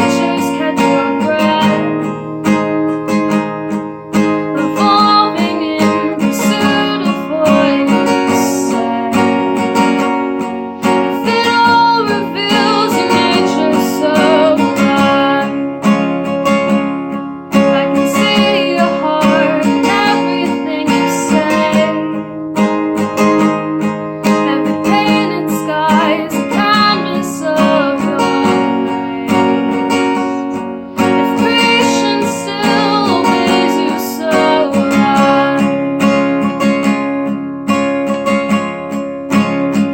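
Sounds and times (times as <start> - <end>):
person singing: 0.0 - 2.3, 4.5 - 9.9, 10.8 - 15.8, 17.6 - 22.2, 24.3 - 36.0
strummed acoustic guitar: 0.0 - 39.9.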